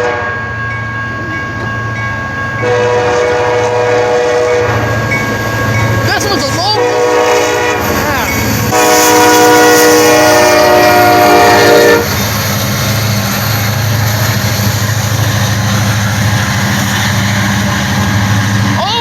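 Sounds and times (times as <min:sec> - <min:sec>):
locomotive horn blast: 0:00.0 - 0:00.4, 0:02.6 - 0:05.0, 0:06.6 - 0:12.2
train rumbling: 0:00.0 - 0:19.0.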